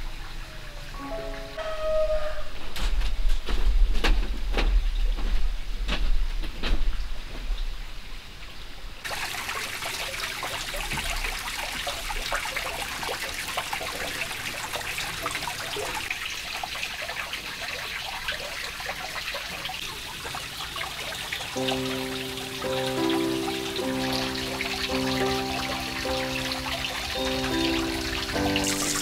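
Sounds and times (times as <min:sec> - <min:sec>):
water trickling and splashing: 0:03.4 - 0:29.0.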